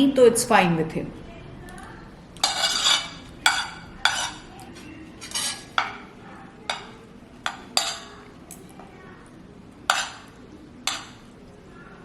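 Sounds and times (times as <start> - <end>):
cutlery clinking against plate: 2.4 - 6.1, 6.7 - 8.6, 9.9 - 10.3, 10.9 - 11.2.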